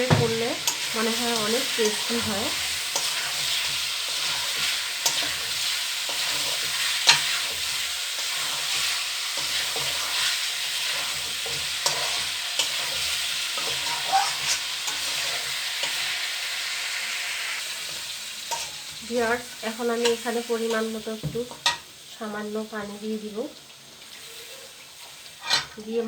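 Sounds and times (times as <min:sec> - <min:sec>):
utensil clicking against pan: 0:00.0 - 0:03.6, 0:05.0 - 0:05.4
fish sizzling in oil: 0:00.0 - 0:26.0.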